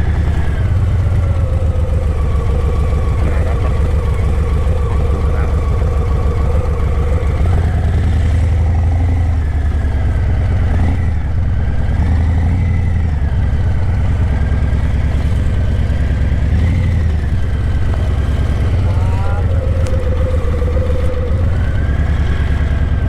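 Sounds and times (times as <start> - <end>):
motorcycle exhaust while riding: 0.0 - 23.0.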